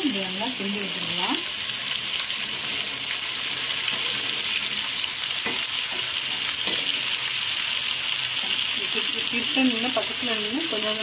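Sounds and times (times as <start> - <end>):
vegetables sizzling in hot oil: 0.0 - 11.0
metal spatula scraping pan: 1.8 - 7.3.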